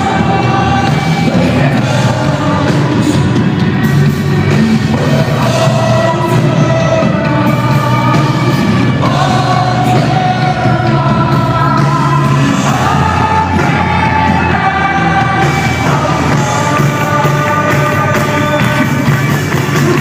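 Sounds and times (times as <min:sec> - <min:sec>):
live rock band playing: 0:00.0 - 0:20.0
person singing long notes: 0:00.0 - 0:20.0.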